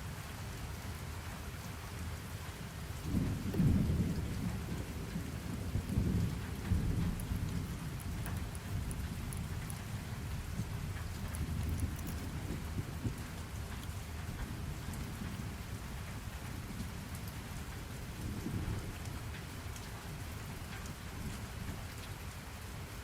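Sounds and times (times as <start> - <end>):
rain drops ticking: 0.0 - 23.0.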